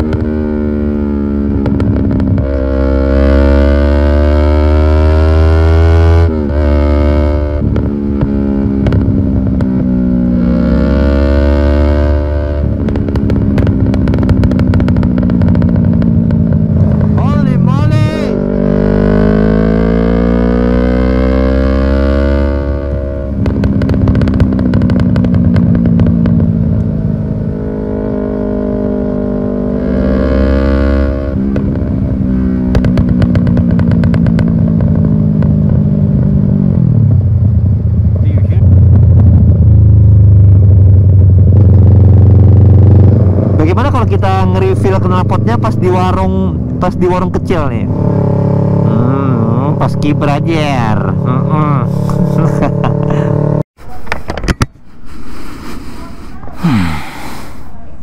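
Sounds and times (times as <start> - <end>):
exhaust pops and crackles: 0.0 - 0.7, 1.3 - 2.7, 7.6 - 10.6, 12.4 - 18.3, 22.4 - 27.2, 31.2 - 37.0
motorcycle engine revving: 0.0 - 54.0, 56.0 - 58.0.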